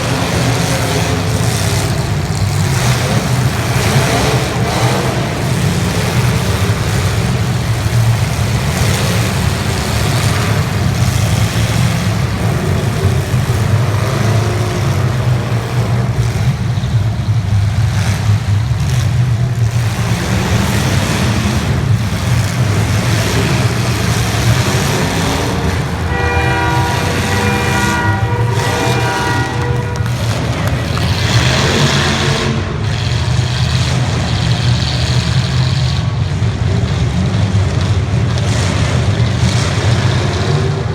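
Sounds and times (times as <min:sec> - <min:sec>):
car engines revving: 0:00.0 - 0:40.9
horn chord: 0:25.6 - 0:31.0.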